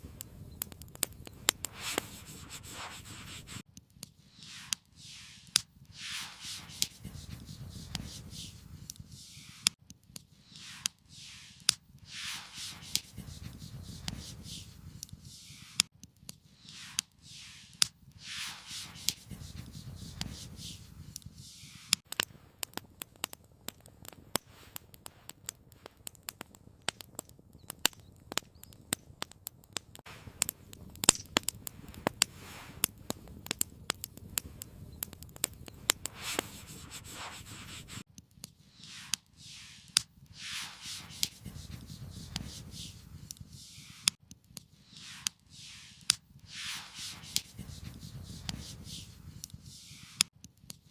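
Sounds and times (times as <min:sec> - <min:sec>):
campfire crackling and popping: 0:00.0 - 0:50.9
short hissing: 0:01.6 - 0:03.6, 0:04.3 - 0:09.8, 0:10.4 - 0:15.9, 0:16.6 - 0:19.4, 0:21.4 - 0:22.0, 0:36.0 - 0:38.0, 0:38.7 - 0:44.2, 0:44.8 - 0:49.1, 0:49.7 - 0:50.2.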